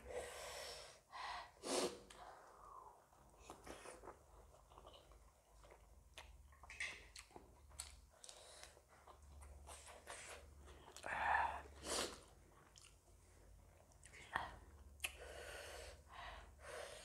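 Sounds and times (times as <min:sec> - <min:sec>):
person chewing food: 0:03.3 - 0:15.2.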